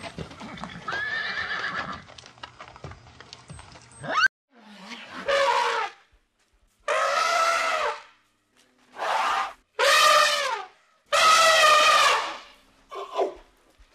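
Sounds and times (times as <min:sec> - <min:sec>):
elephant trumpeting: 0:06.9 - 0:08.1, 0:09.0 - 0:13.3.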